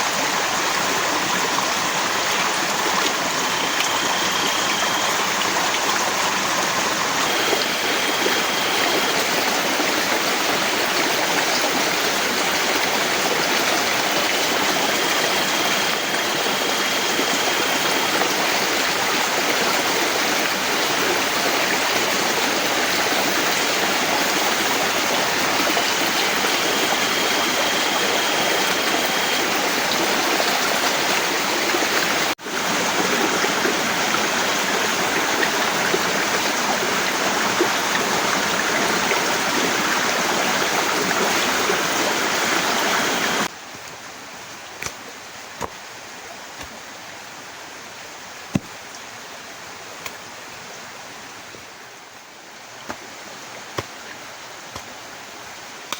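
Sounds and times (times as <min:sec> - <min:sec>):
faint high steady tone: 0:03.2 - 0:06.3, 0:24.4 - 0:31.1.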